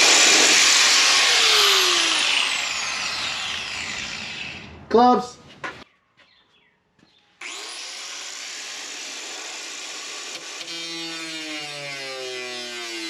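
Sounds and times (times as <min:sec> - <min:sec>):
power cutting tool whining: 0:00.0 - 0:04.9, 0:07.4 - 0:13.0
low wavering hum: 0:02.4 - 0:05.0.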